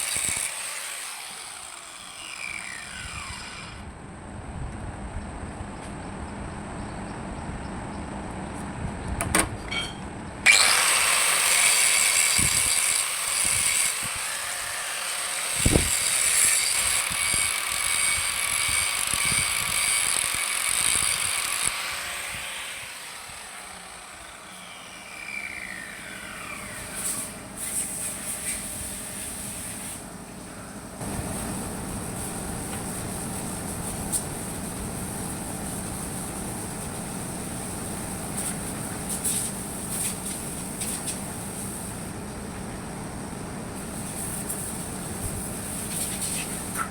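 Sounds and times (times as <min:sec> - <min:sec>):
electric power tool whining: 0:00.0 - 0:03.9, 0:10.5 - 0:27.6
low steady machine noise: 0:22.8 - 0:46.8.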